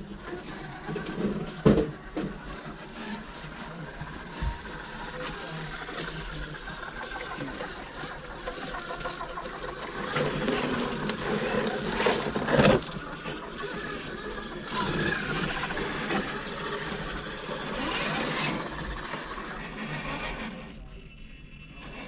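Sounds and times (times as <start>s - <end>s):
rc truck motor whining: 0.0s - 22.0s.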